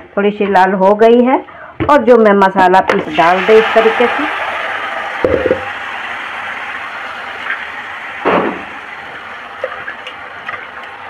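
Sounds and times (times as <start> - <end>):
paste sizzling in hot oil: 3.1 - 11.0.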